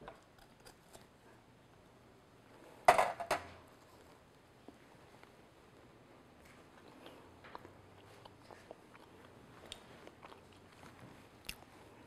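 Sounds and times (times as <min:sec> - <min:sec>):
shortbread crunching and chewing: 0:06.4 - 0:12.0.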